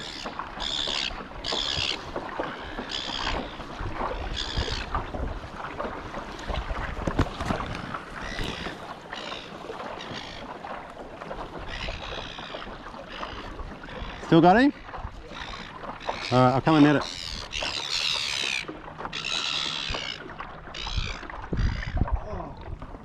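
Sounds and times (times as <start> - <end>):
water splashes and knocks: 0.0 - 23.0
wind on microphone: 3.2 - 8.9, 20.8 - 23.0.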